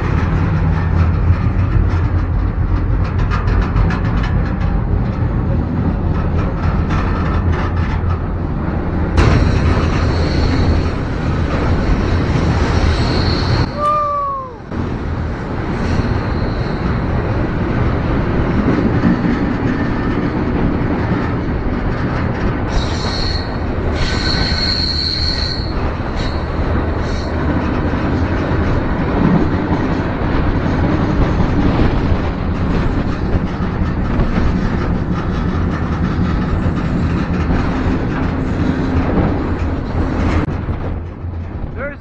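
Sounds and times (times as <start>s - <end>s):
train wheels rumbling on rails: 0.0s - 42.0s
train wheels squealing: 9.4s - 11.6s, 12.5s - 14.6s, 15.8s - 17.2s, 22.7s - 27.4s.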